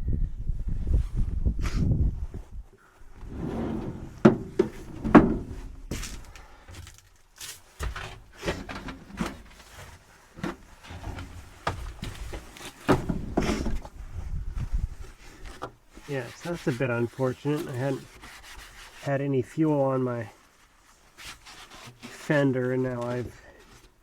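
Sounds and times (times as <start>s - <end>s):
objects knocking and clunking: 3.8s - 13.9s.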